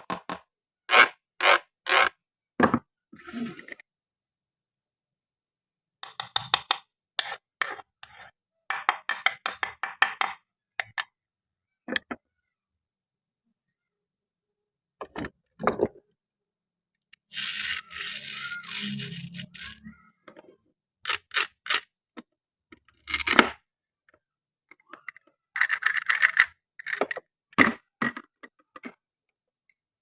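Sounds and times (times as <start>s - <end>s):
plastic toy clicks and knocks: 6.0s - 6.9s, 8.7s - 11.2s, 21.0s - 23.6s, 24.7s - 29.0s
plastic pieces rattling: 17.3s - 19.8s, 25.5s - 27.2s.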